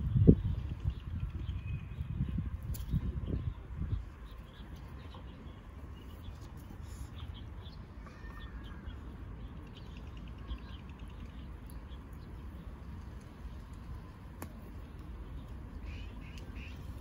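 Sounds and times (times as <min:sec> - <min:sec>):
steady low rumble: 0:00.0 - 0:08.0
small birds chirping: 0:00.0 - 0:17.0.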